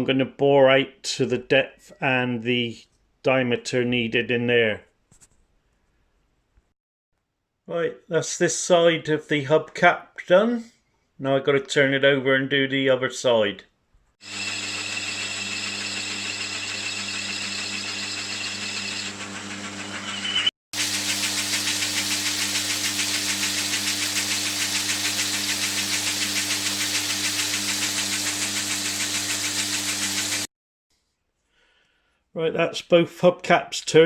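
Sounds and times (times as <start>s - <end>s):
high whine of metal cutting: 14.2s - 30.5s
lathe motor hum: 14.2s - 30.5s
cutting hiss with fast flutter: 20.8s - 30.5s.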